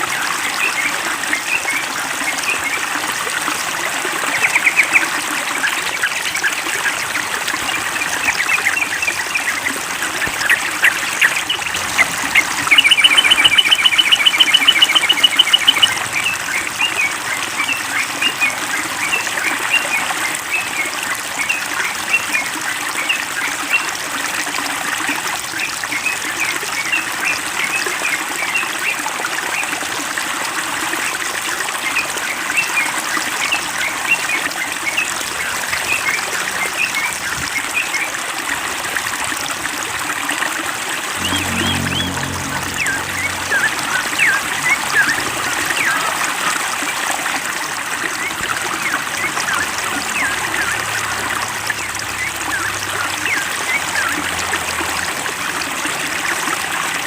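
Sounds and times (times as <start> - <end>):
trickle of running water: 0.0 - 57.0
birds chirping: 10.4 - 17.0, 41.1 - 46.2.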